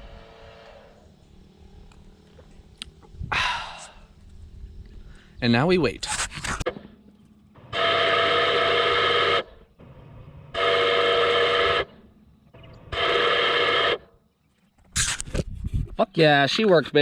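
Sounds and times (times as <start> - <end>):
faint low hum: 0.0 - 17.0
long horn blasts: 7.6 - 9.6, 10.5 - 12.0.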